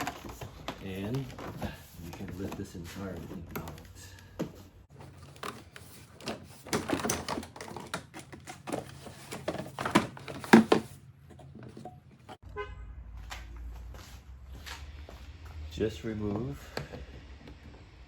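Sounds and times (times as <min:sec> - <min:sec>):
plastic parts clicking and knocking: 0:00.0 - 0:12.4.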